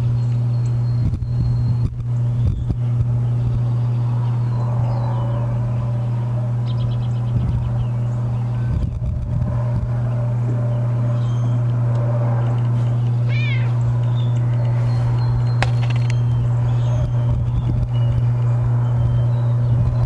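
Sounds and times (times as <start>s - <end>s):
steady low hum: 0.0s - 20.0s
cat meowing: 13.3s - 13.8s.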